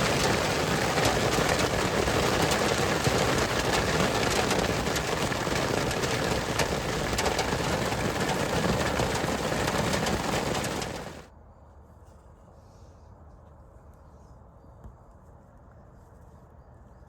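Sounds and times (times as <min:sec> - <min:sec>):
heavy rain pelting car roof: 0:00.0 - 0:11.3.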